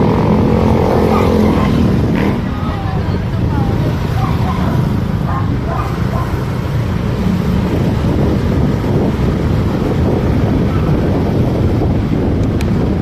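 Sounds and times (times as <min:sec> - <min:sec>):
motorcycle engine: 0:00.0 - 0:13.0
road noise: 0:00.0 - 0:13.0
wind noise on microphone: 0:00.0 - 0:13.0.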